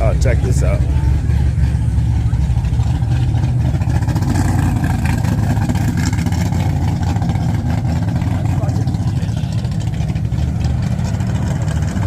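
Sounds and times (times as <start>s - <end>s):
car engine exhaust rumble: 0.0s - 12.0s.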